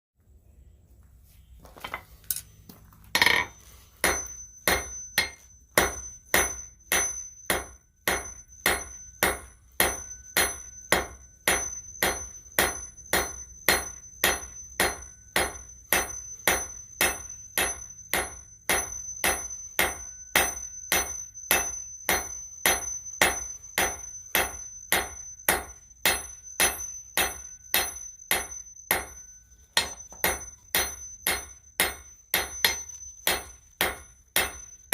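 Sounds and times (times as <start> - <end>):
hammer striking steel on anvil: 3.2 - 34.9.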